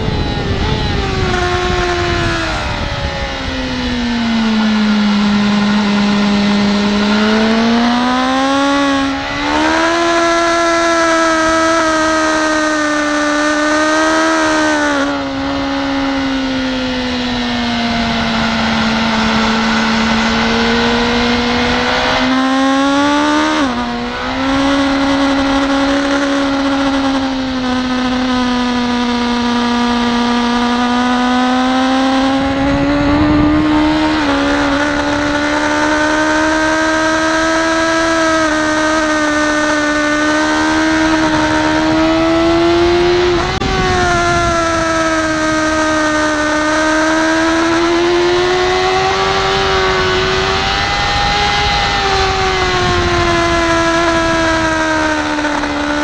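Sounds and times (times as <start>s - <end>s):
motorcycle engine at high revs: 0.0s - 56.0s.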